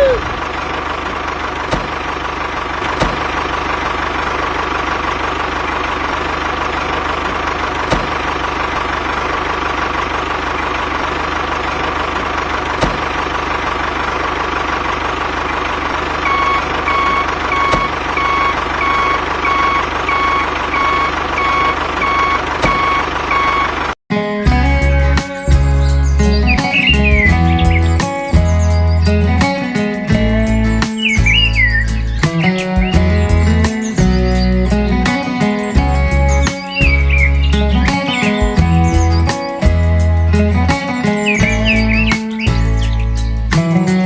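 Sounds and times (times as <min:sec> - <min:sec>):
engine idling: 0:00.0 - 0:22.0, 0:24.4 - 0:44.0
reversing alarm beeping: 0:16.2 - 0:23.8
music: 0:24.1 - 0:44.0.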